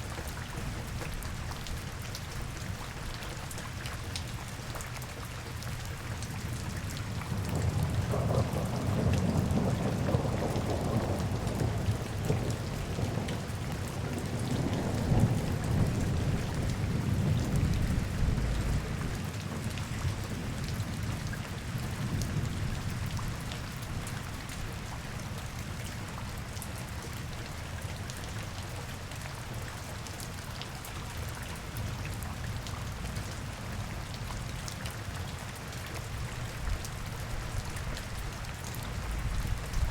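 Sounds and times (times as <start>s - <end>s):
rain falling: 0.0s - 39.9s
deep thunder rumble: 7.3s - 19.2s.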